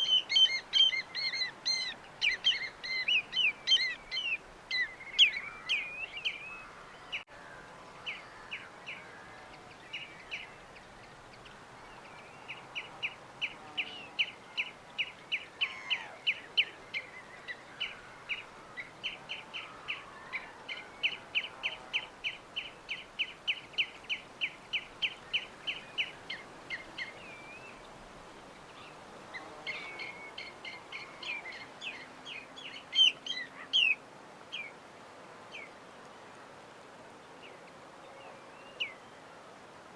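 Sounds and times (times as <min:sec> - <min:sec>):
birds chirping: 0:00.0 - 0:07.3, 0:28.6 - 0:34.7.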